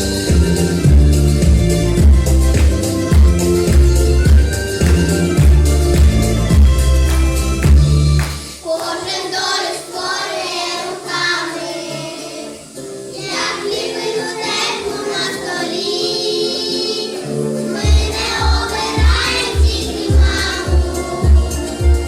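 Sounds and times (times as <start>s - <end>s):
backing track with bass beat: 0.0s - 8.5s, 17.8s - 22.0s
children singing: 8.3s - 22.0s.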